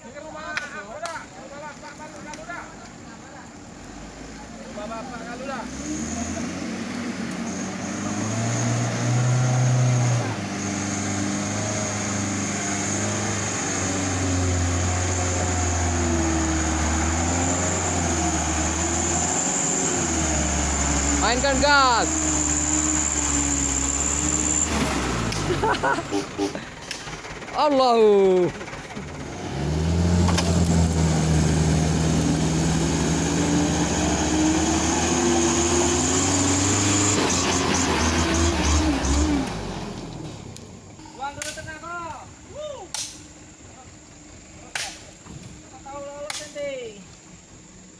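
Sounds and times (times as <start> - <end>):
truck engine running: 3.8 - 41.0.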